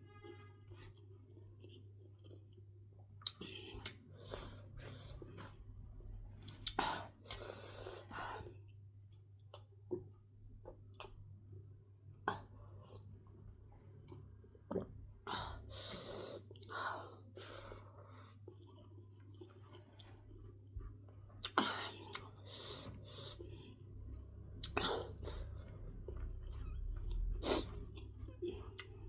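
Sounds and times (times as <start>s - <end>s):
low steady hum: 0.0s - 29.0s
person chewing: 0.2s - 8.6s, 15.7s - 29.0s.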